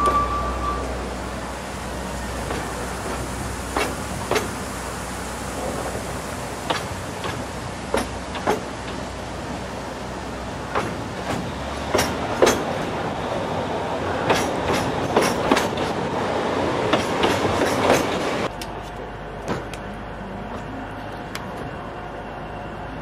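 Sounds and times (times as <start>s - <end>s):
rail joint clacks: 0.0s - 1.3s, 2.3s - 4.6s, 6.6s - 9.1s, 10.7s - 13.0s, 14.0s - 18.8s
train wheels rolling on rail: 0.0s - 22.2s.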